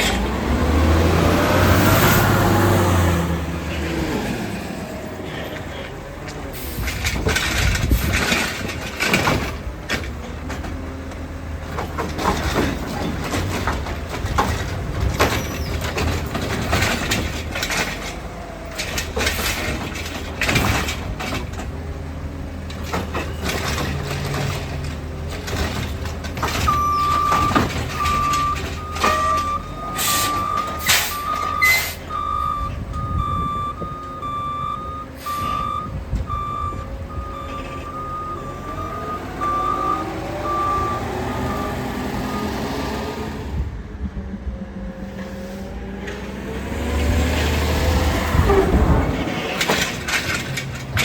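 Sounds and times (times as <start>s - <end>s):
garbage truck engine running: 0.0s - 51.0s
metal clanks and bangs: 6.7s - 32.8s, 48.1s - 51.0s
backup alarm beeping: 26.7s - 42.6s.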